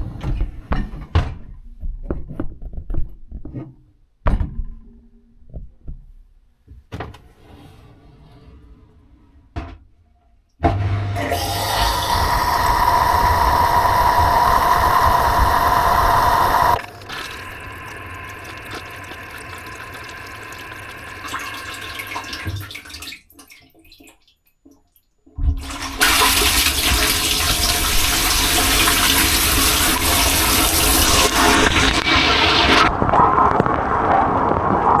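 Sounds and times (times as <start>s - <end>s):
steady whine: 11.2s - 21.8s
dishwasher water jets spraying: 11.2s - 23.0s, 25.6s - 32.9s.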